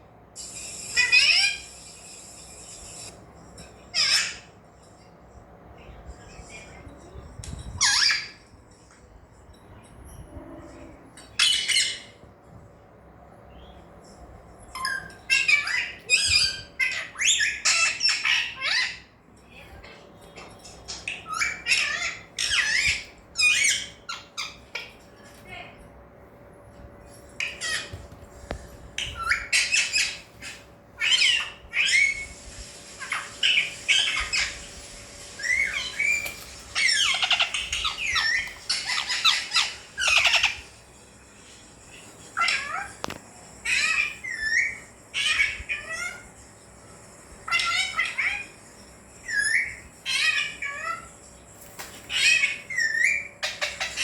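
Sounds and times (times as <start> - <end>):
parakeet squawking and chattering: 0.4 - 3.1, 3.8 - 4.6, 7.4 - 8.5, 10.3 - 12.2, 14.6 - 19.2, 20.4 - 25.2, 27.3 - 40.9, 41.8 - 46.4, 47.4 - 54.0.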